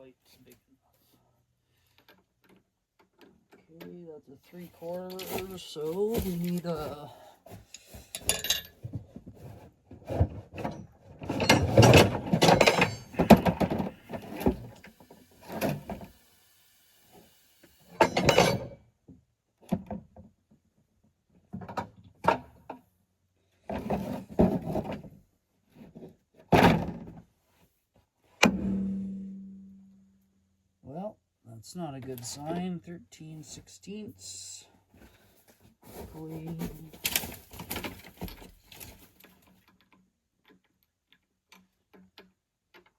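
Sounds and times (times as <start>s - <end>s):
metal wrenches clanking: 7.8s - 8.8s, 10.6s - 13.8s, 18.0s - 18.8s.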